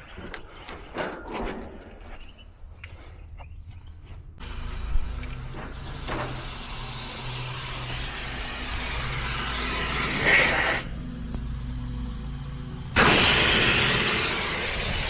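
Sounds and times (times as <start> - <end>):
steady low hum: 0.0 - 15.0
gas hissing from lines: 4.4 - 15.0.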